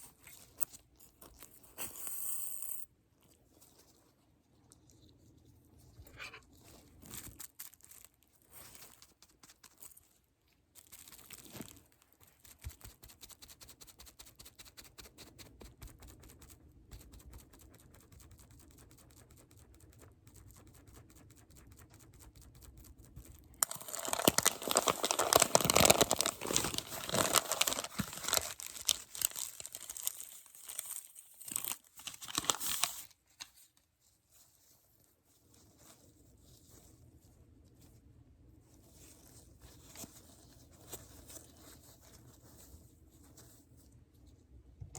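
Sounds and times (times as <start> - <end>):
loud crinkling and tearing: 23.6 - 33.1.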